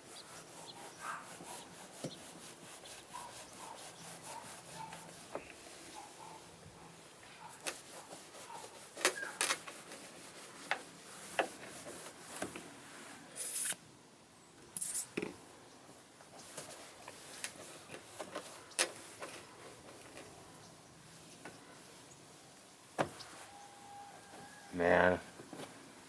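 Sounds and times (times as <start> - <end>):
scraping and rubbing on plastic: 0.0 - 6.6, 7.4 - 13.8, 16.4 - 20.4.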